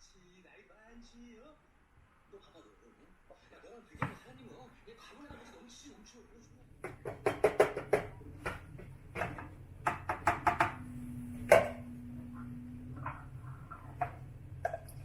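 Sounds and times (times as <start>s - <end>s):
low hum: 10.6s - 15.0s.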